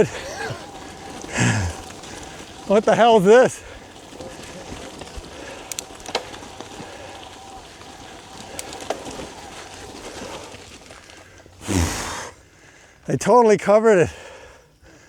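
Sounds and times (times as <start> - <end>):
faint clicks: 0.0 - 11.6
outdoor hiss: 11.6 - 13.1.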